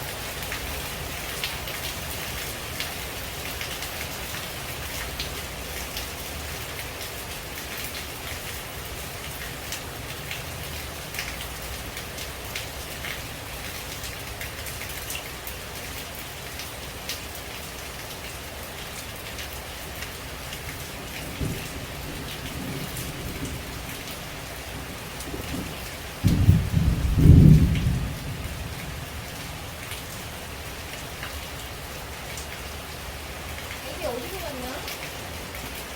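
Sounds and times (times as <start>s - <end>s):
rain falling on leaves: 0.0s - 35.9s
raindrops ticking: 0.0s - 35.9s
low thunder rumble: 21.0s - 30.0s.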